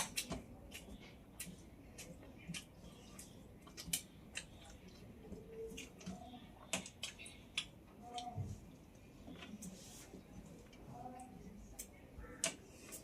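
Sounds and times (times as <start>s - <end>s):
person chewing with mouth smacks: 0.0s - 8.3s.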